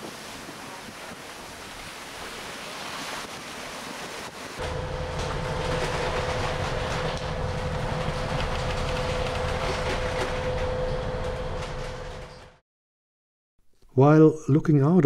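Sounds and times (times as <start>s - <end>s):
boat engine droning: 4.6s - 12.6s.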